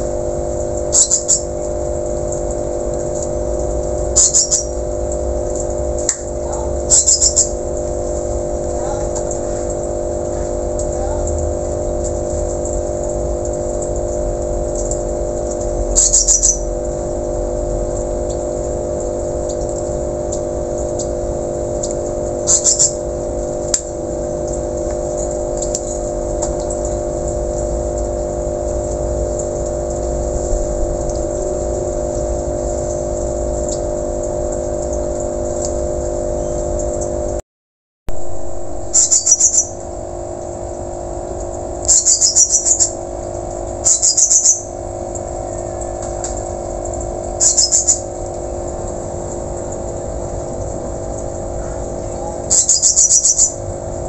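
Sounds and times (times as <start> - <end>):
steady low hum: 0.0 - 37.4, 38.1 - 54.0
bird shrill calls: 0.9 - 1.5, 4.2 - 4.7, 6.9 - 7.5, 16.0 - 16.6, 22.5 - 23.0, 39.0 - 39.8, 41.9 - 43.0, 43.8 - 44.7, 47.4 - 48.0, 52.2 - 53.6.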